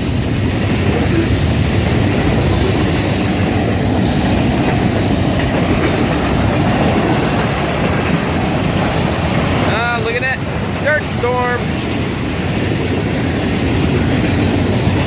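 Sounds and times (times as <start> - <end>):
freight train wheels rumbling on rails: 0.0 - 15.0.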